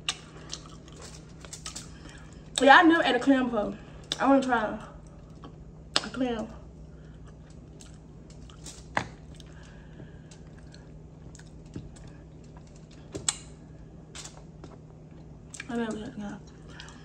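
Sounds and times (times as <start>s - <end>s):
chewing and lip-smacking: 0.0s - 2.6s, 7.0s - 13.5s.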